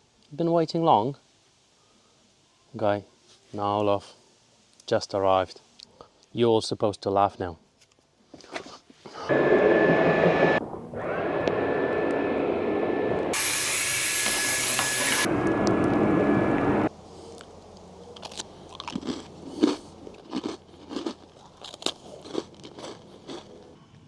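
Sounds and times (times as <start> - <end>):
small motor whining: 9.3 - 16.9.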